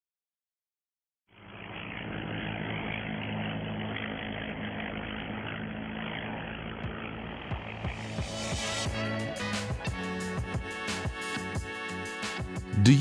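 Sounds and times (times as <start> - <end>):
propeller aircraft engine drone: 1.3 - 13.0
music: 7.5 - 13.0.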